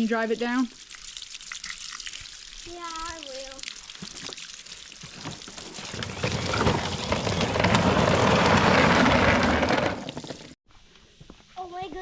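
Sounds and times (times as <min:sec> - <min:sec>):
toy tractor rumbling: 0:05.8 - 0:10.6.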